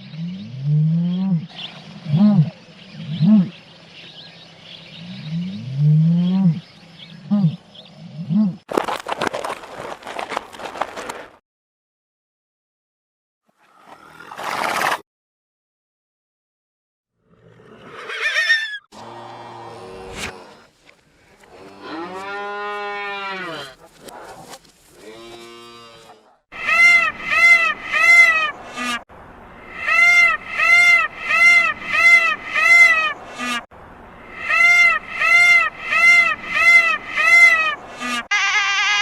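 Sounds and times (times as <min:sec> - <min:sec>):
animal honking calls: 0:34.4 - 0:39.0.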